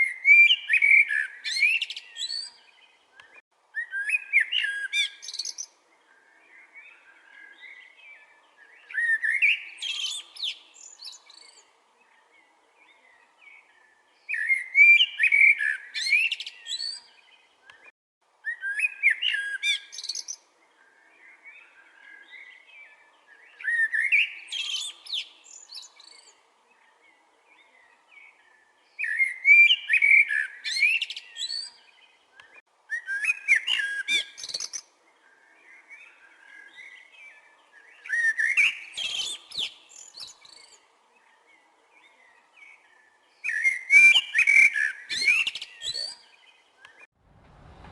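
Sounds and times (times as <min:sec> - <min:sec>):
blackbird singing whistled phrases: 0:00.0 - 0:02.6, 0:03.8 - 0:05.7, 0:08.8 - 0:11.6, 0:14.3 - 0:17.1, 0:18.4 - 0:20.4, 0:23.5 - 0:26.3, 0:29.0 - 0:31.8, 0:32.4 - 0:34.8, 0:35.7 - 0:40.8, 0:43.4 - 0:47.0.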